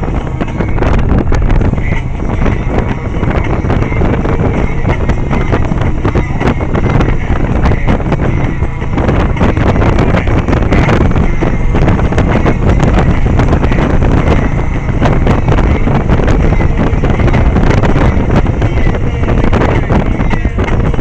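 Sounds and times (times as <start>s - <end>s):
vehicle running noise: 0.0s - 21.0s
wind buffeting microphone: 0.0s - 21.0s.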